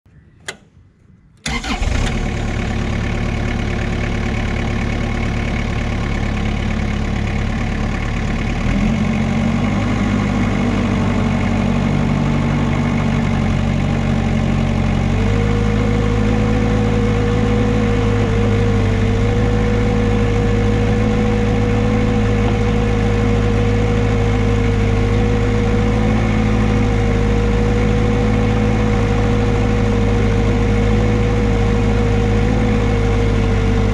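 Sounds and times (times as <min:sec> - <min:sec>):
short click: 0:00.4 - 0:00.8
engine starting and running: 0:00.4 - 0:33.9.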